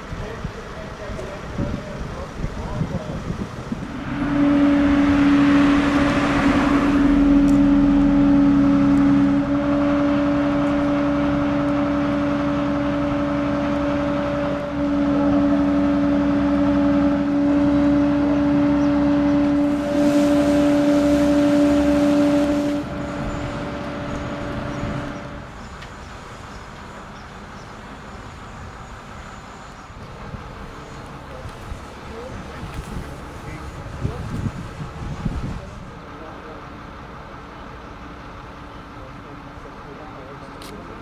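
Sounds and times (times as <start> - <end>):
motor running steadily: 1.1 - 25.5.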